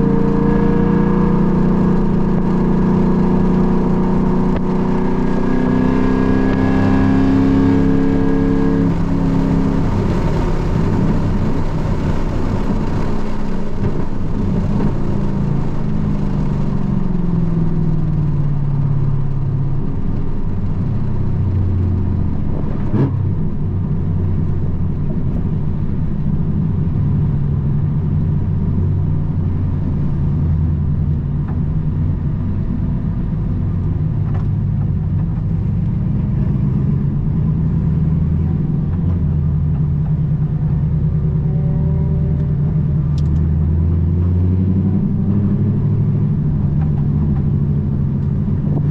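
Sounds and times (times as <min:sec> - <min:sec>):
car engine drone: 0:00.0 - 0:48.9.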